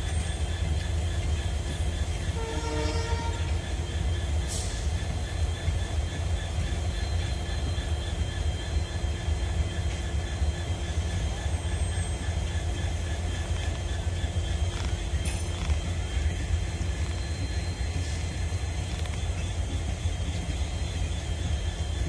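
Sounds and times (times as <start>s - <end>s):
train rumbling slowly: 0.0s - 22.0s.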